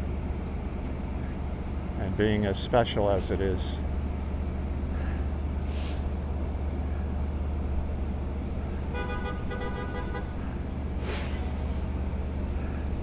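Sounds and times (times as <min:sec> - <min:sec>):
locomotives idling hum: 0:00.0 - 0:13.0
brief hiss: 0:05.6 - 0:06.1.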